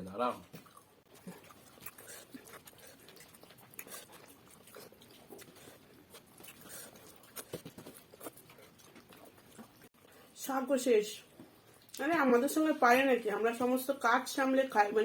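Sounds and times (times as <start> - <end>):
chewing and mouth smacks: 0.4 - 9.9, 11.4 - 12.0.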